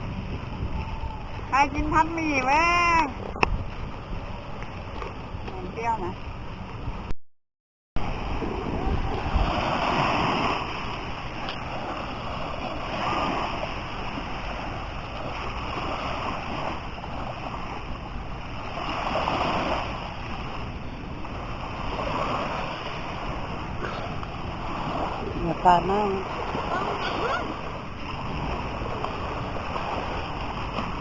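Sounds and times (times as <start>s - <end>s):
sea waves breaking on beach: 8.0s - 31.0s.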